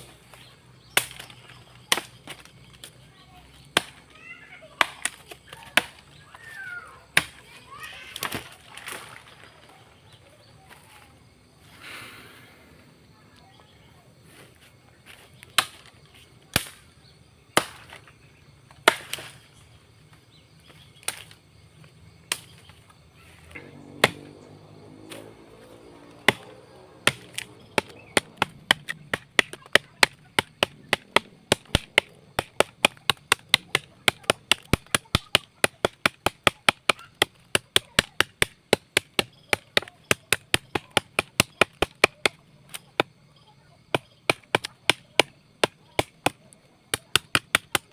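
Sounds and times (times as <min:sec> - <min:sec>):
machete chopping into tree: 0:00.9 - 0:02.8, 0:03.6 - 0:04.1, 0:08.2 - 0:09.2, 0:15.4 - 0:15.9, 0:16.5 - 0:16.9, 0:17.5 - 0:18.1, 0:18.7 - 0:19.4, 0:21.0 - 0:21.4, 0:22.3 - 0:22.8, 0:23.5 - 0:43.2, 0:43.9 - 0:47.9.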